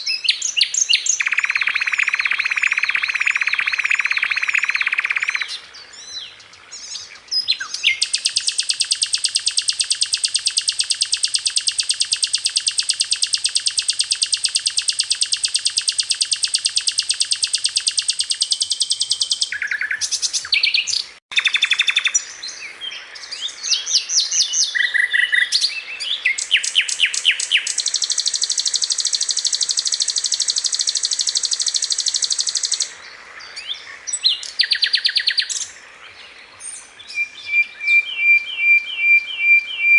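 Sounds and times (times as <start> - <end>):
bird trilling song: 0.0 - 39.9
bird chirps and rattles: 1.1 - 5.4, 7.9 - 20.3, 26.4 - 32.9.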